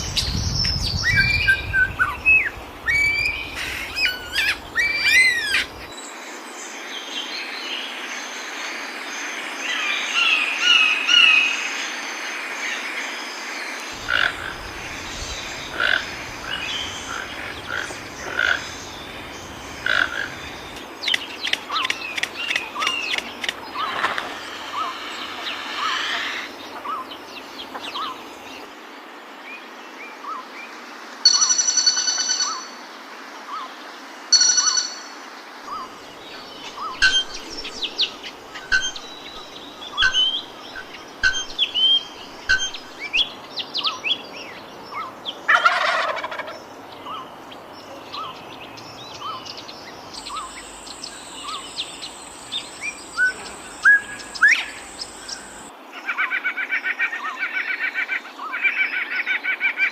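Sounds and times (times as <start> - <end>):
buzzy bird calls: 0.0 - 5.9, 13.9 - 28.7, 35.7 - 55.7
upward-sweeping bird notes: 14.0 - 28.2, 35.7 - 43.6
bird chirps: 14.0 - 28.7, 35.7 - 45.2, 46.6 - 55.7.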